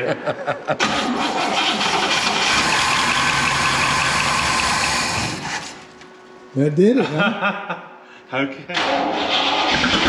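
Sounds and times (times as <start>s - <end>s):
car engine cranking: 0.8s - 5.2s, 8.8s - 10.0s.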